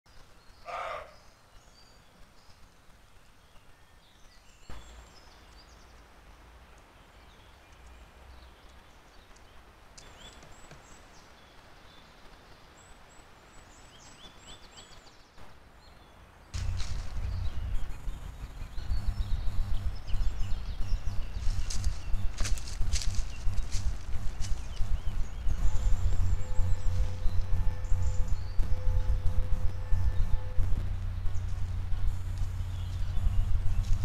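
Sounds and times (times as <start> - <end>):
distant birds singing: 0.1 - 34.0
low rustling rumble: 16.6 - 34.0.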